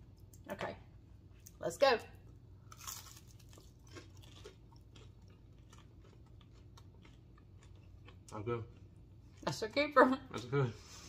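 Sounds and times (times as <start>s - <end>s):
crisp bite and chewing: 2.7s - 8.2s.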